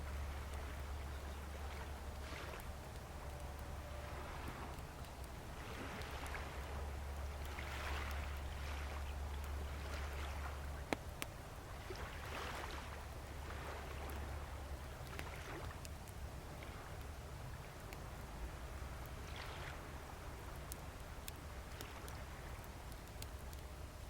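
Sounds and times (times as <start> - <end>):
bonfire crackling: 0.0 - 24.0
small waves washing ashore: 0.1 - 15.8, 18.5 - 22.8.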